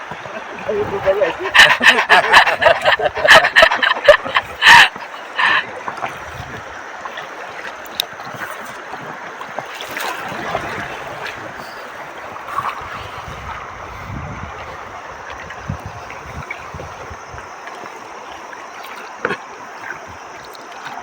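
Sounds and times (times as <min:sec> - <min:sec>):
river water rushing and splashing: 0:00.0 - 0:21.0
wind noise on microphone: 0:00.2 - 0:05.0, 0:12.5 - 0:17.6.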